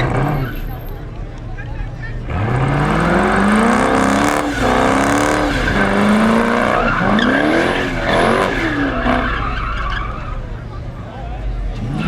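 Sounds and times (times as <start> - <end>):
car engine revving hard: 0.0 - 0.8, 2.2 - 10.0
tyre squeal: 2.9 - 10.7.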